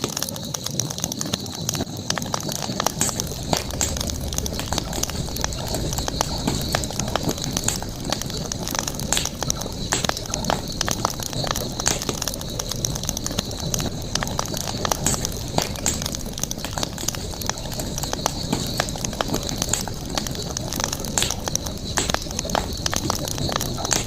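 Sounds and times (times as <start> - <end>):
campfire crackling and popping: 0.0 - 24.0
high-pitched night insects drone: 0.0 - 24.0.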